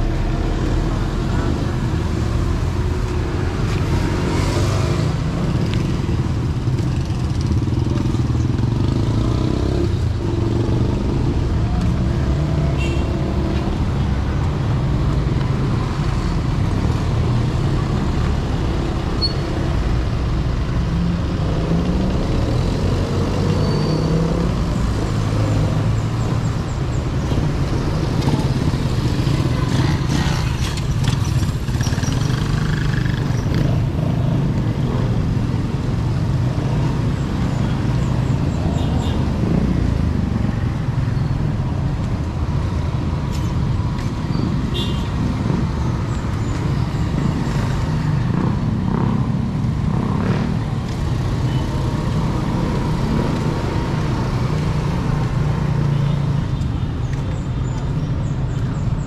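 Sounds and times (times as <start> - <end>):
vehicle engines passing: 0.0 - 59.0.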